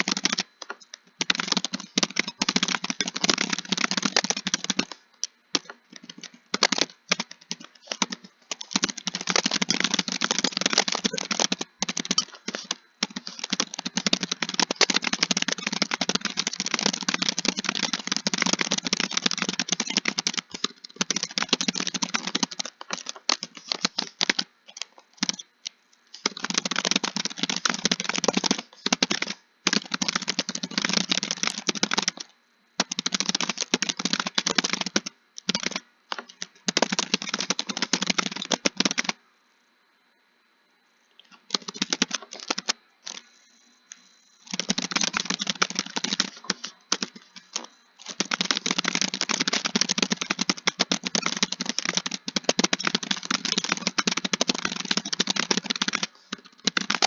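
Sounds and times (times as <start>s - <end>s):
fast typing on keyboard: 0.0s - 39.2s, 41.4s - 43.3s, 43.9s - 57.0s.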